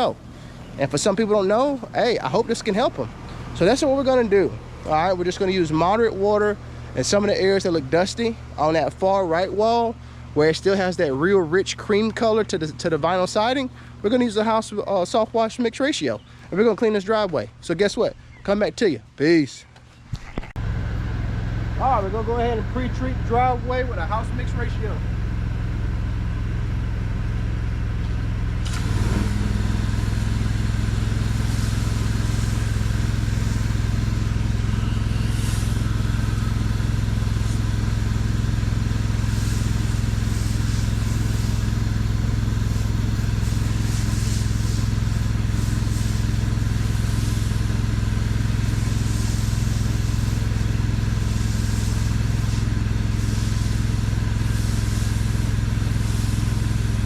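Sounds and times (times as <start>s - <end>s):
pressure washer engine running: 0.0s - 17.9s, 20.6s - 57.0s
water spraying hiss: 28.6s - 57.0s.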